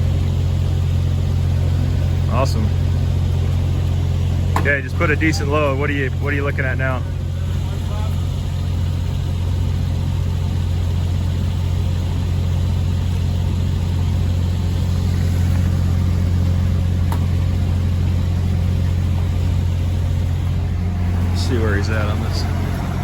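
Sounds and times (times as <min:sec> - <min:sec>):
diesel engine running steadily: 0:00.0 - 0:23.0.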